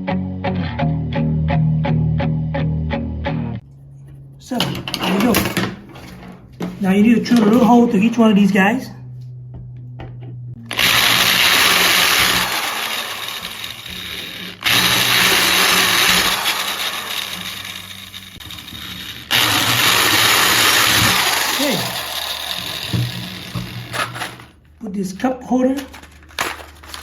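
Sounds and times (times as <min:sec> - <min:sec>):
electric drill drilling pipe: 0:04.6 - 0:06.2, 0:10.6 - 0:24.6.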